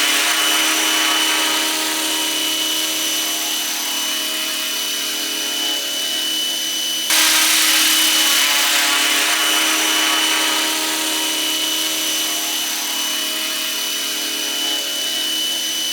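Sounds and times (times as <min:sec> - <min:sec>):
model helicopter whine: 0:00.0 - 0:06.3, 0:07.1 - 0:15.8
rushing noise: 0:07.1 - 0:14.1.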